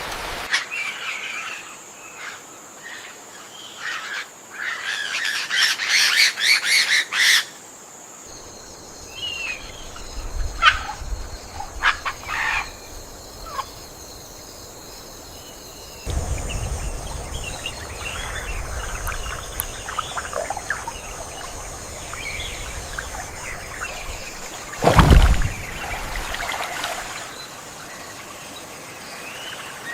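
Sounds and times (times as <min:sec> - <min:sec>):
birds chattering calls: 0:08.3 - 0:27.4.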